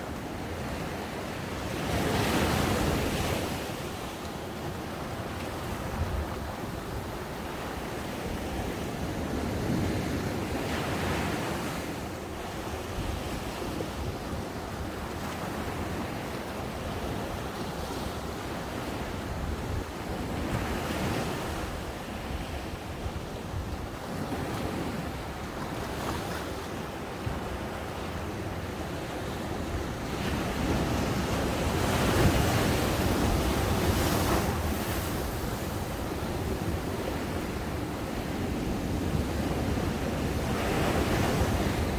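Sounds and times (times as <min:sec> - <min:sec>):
ocean waves breaking: 0:24.0 - 0:41.9
wind buffeting microphone: 0:27.3 - 0:41.9.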